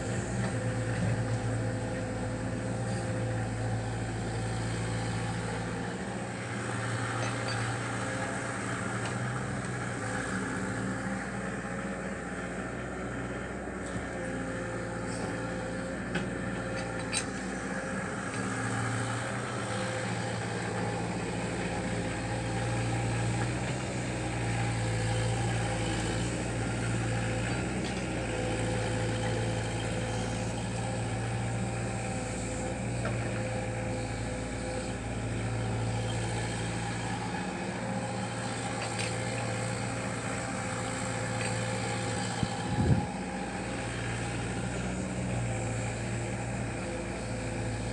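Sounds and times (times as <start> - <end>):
mini excavator diesel engine running: 0.0 - 47.9.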